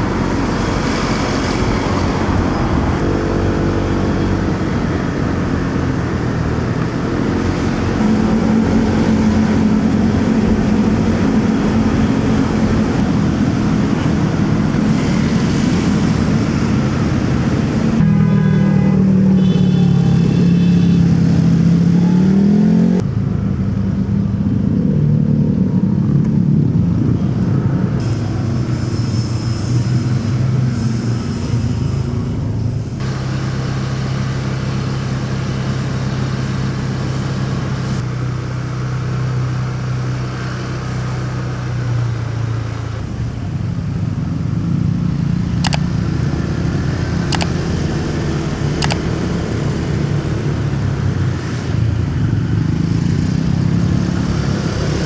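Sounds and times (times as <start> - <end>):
motorcycle engine running: 0.0 - 18.2, 18.8 - 55.0
road and traffic noise: 0.0 - 55.0
sharp clicks: 45.6 - 45.9, 47.3 - 47.6, 48.8 - 49.2.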